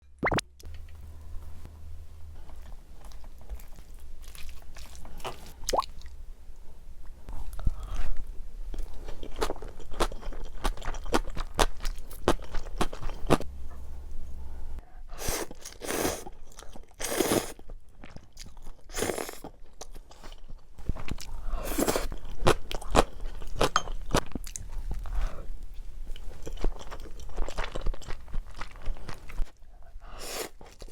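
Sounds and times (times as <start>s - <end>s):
person chewing food: 2.4s - 6.2s, 8.8s - 25.3s, 26.2s - 30.9s
noisy swells: 13.4s - 14.8s.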